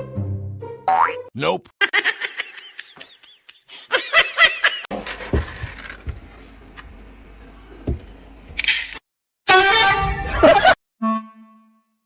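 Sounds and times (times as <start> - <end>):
cartoon boing sound effect: 0.9 - 1.3.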